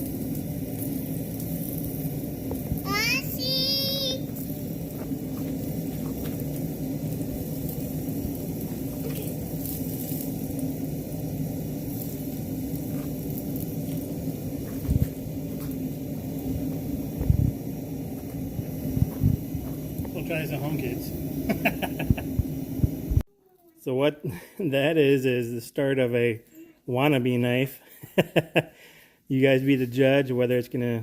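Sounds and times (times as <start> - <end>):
forge burner rushing: 0.0 - 23.3.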